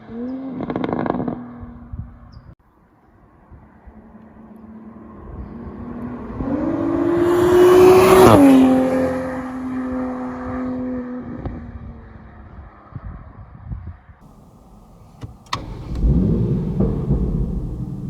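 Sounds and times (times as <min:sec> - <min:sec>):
car exhaust driving past: 0:14.2 - 0:18.0.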